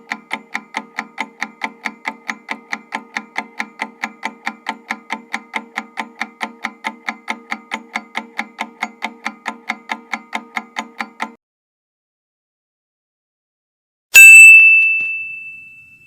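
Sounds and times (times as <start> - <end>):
rapid clock-like ticking: 0.0 - 11.4.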